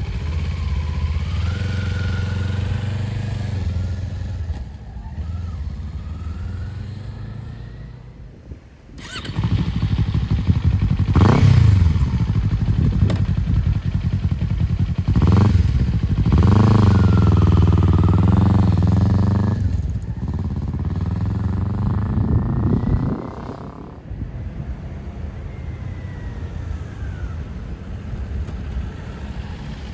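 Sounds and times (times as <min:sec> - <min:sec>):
vehicle engine revving: 0:00.0 - 0:08.1, 0:09.0 - 0:24.1.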